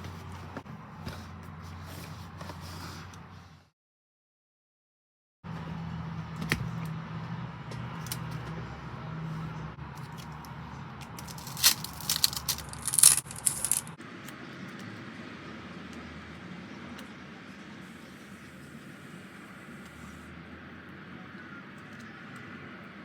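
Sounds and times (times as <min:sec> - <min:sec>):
packaging crinkling and scraping: 0:11.2 - 0:14.0.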